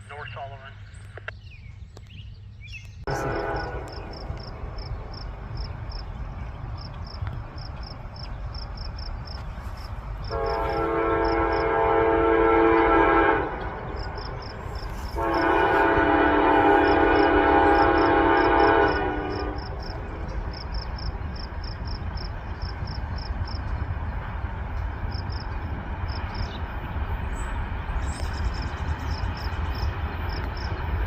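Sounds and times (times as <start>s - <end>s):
locomotive engine rumble: 2.8s - 31.0s
locomotive air horn blasts: 3.1s - 4.5s, 10.3s - 19.8s
crickets chirping: 3.2s - 31.0s.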